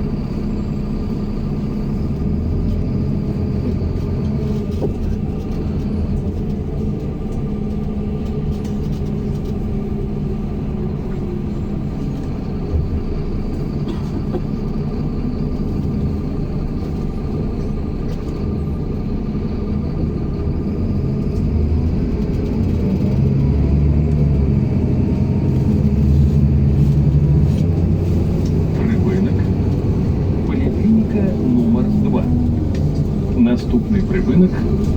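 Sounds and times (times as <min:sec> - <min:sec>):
bus engine and road rumble: 0:00.0 - 0:34.9.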